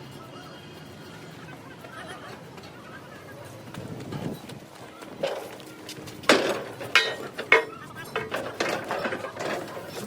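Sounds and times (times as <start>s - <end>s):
metal clanks with ringing: 6.2s - 10.0s.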